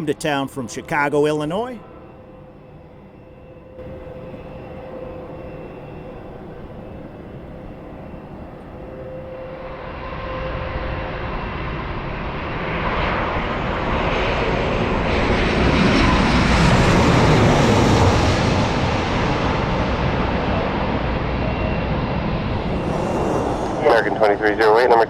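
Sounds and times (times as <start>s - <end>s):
jet engines roaring past: 0.0s - 25.0s.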